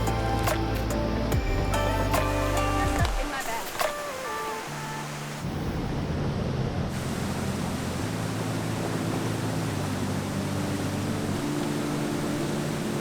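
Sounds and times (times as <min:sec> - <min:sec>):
music of held low chords: 0:00.0 - 0:03.3.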